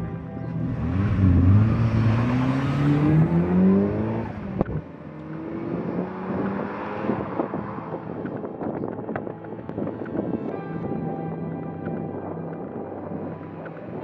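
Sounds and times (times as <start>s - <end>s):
car engine accelerating: 0.0s - 9.2s.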